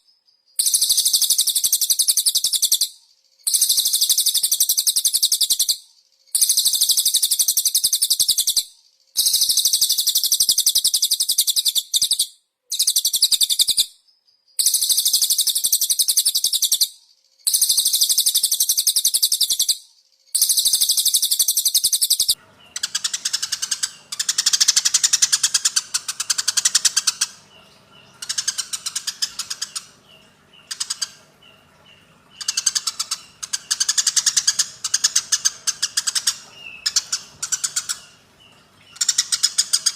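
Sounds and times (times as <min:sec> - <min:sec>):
songbird buzzy trills and chirping: 0:00.0 - 0:39.9.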